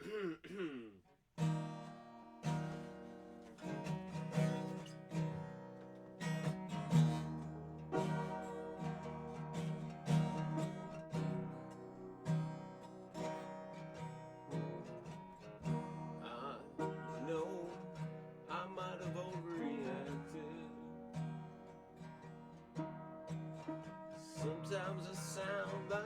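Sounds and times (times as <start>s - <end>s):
stringed instrument strummed chords: 1.4s - 26.0s.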